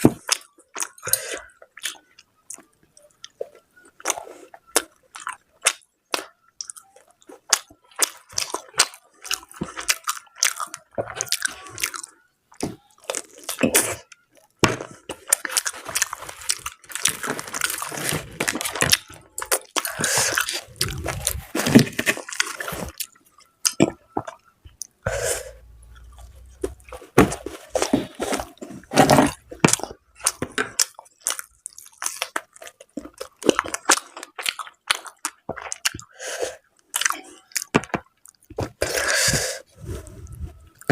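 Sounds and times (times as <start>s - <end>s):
wet chewing and crunching: 0.0s - 40.9s.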